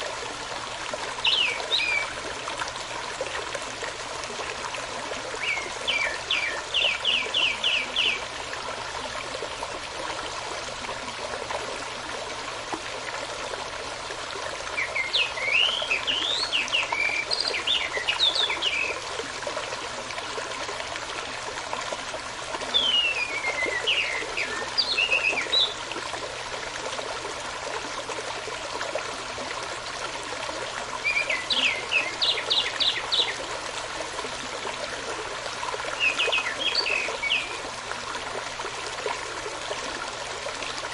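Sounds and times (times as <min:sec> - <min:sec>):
stream running water: 0:00.0 - 0:40.9
birdsong with gliding whistles: 0:22.7 - 0:25.8.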